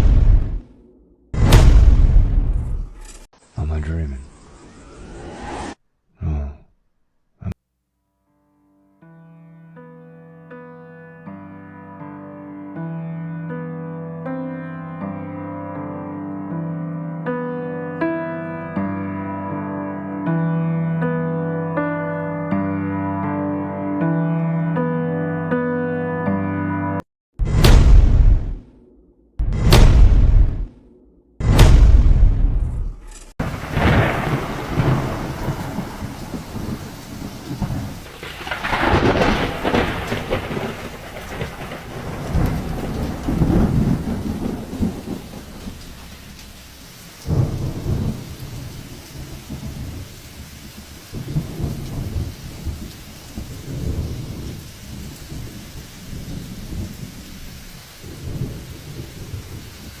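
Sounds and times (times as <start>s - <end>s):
loud thunder crack: 0.0s - 3.0s, 27.4s - 28.7s, 29.4s - 30.8s, 31.4s - 50.2s, 51.1s - 59.8s
thunder rolling: 0.0s - 3.1s, 31.4s - 60.0s
steady rain: 33.4s - 60.0s.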